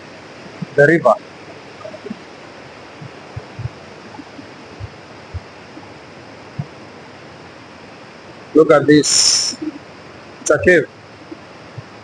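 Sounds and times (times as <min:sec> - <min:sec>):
soft low thumps: 0:02.9 - 0:05.9, 0:06.6 - 0:06.8.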